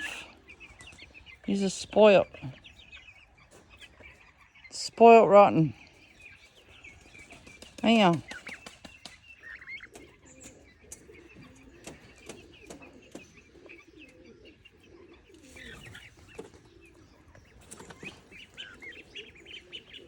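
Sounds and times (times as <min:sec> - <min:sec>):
ducklings peeping: 0:00.0 - 0:20.0.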